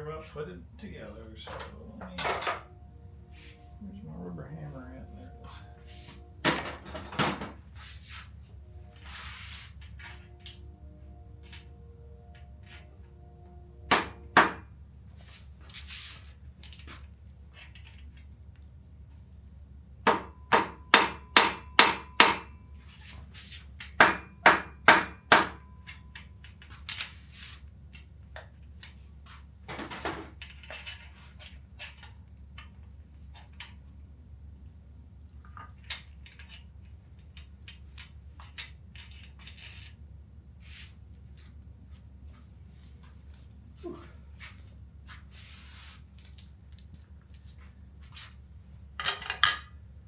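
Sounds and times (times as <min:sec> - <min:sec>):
light metallic clinks: 0:46.2 - 0:47.7.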